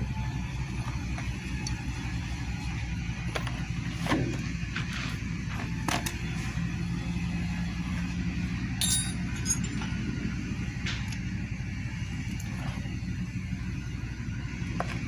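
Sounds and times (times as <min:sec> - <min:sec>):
low motor hum: 0:00.0 - 0:15.0
metallic clinks of hand tools: 0:08.8 - 0:09.8.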